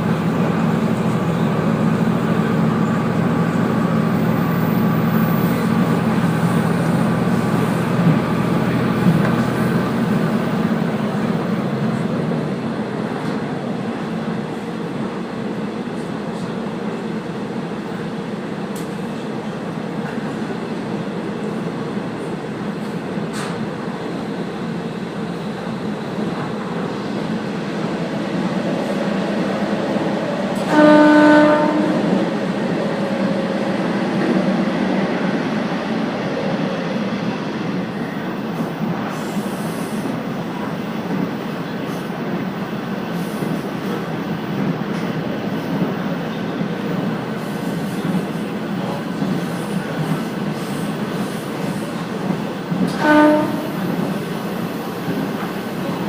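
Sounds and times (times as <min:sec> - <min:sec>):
diesel railcar running on rails: 0:00.0 - 0:56.0
train horn: 0:30.6 - 0:32.2, 0:53.0 - 0:53.8.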